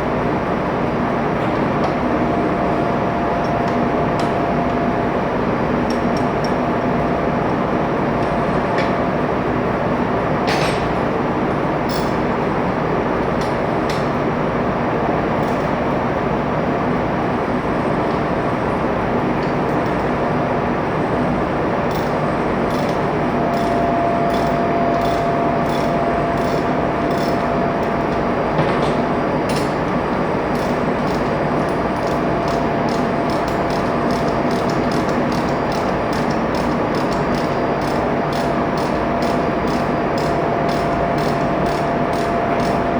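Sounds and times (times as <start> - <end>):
engine-room machinery humming: 0.0 - 42.9
steady whine: 18.5 - 42.9
sharp metallic clicks: 21.9 - 28.2, 30.5 - 42.8.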